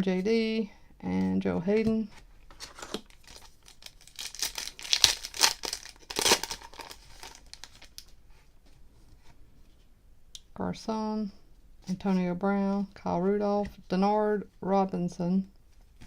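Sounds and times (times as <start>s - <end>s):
wrapper tearing and crinkling: 2.9s - 8.1s.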